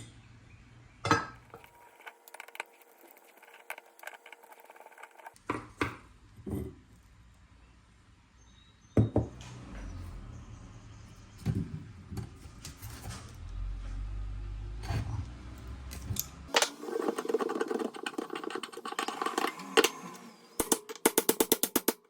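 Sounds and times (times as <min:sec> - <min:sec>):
hard parts knocking and clicking: 0:15.9 - 0:20.0, 0:20.6 - 0:22.0.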